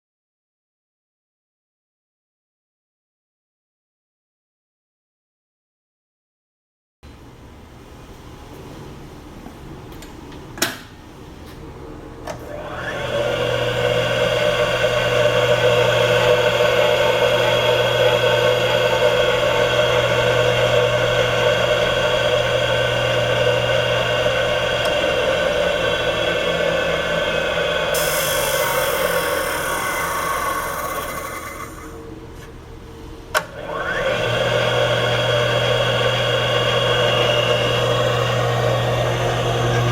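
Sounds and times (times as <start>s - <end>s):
grinder motor whining: 12.4s - 32.1s, 33.5s - 39.9s.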